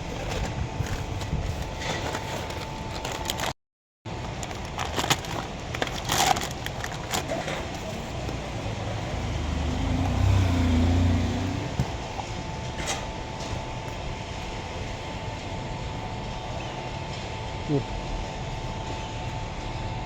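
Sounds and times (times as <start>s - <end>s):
steady background noise: 4.1s - 20.0s
low motor hum: 5.4s - 17.4s.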